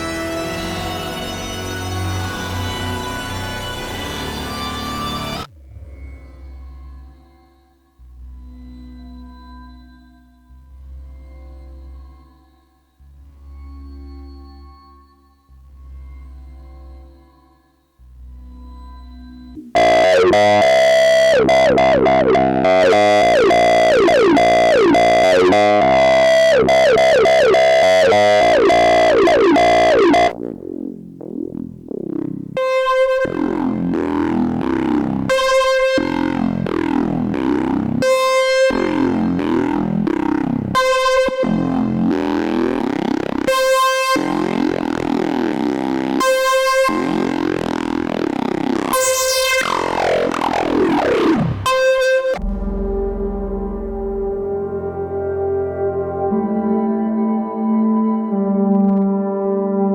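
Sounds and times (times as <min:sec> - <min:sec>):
bright synthesizer note repeated: 0:19.8 - 0:30.4, 0:49.0 - 0:56.0
synthesizer falling pitch sweeps: 0:19.8 - 0:59.9.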